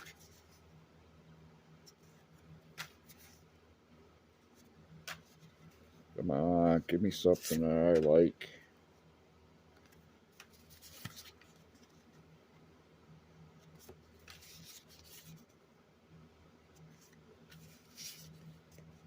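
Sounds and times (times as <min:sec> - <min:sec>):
low steady hum: 0:00.0 - 0:19.0
baseball cards flipped by hand: 0:02.7 - 0:03.4, 0:05.0 - 0:05.5, 0:09.8 - 0:12.0.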